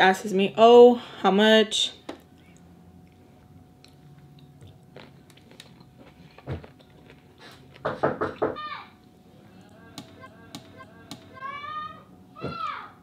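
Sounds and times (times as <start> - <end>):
person chewing food: 2.3 - 7.8.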